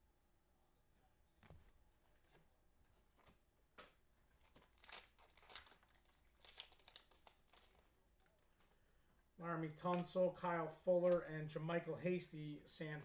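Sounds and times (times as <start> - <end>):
cellophane wrapper crinkling and tearing: 4.4 - 8.7.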